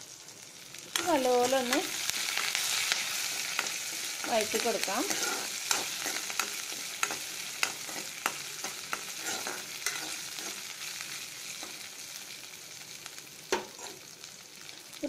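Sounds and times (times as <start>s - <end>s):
chillies sizzling in hot oil: 0.0s - 15.0s
spoon scraping pan: 1.0s - 11.9s, 13.5s - 14.0s.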